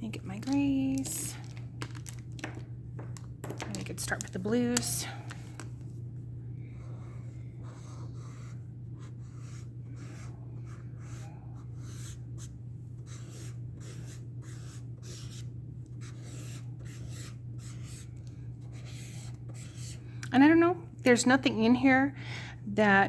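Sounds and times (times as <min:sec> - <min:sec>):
steady low hum: 0:00.0 - 0:23.0
marker scratching on paper: 0:06.8 - 0:20.0.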